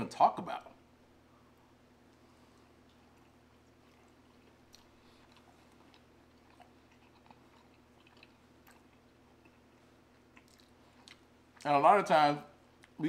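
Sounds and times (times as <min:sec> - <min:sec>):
steady low hum: 0:00.0 - 0:13.0
people chewing pizza: 0:01.5 - 0:11.8.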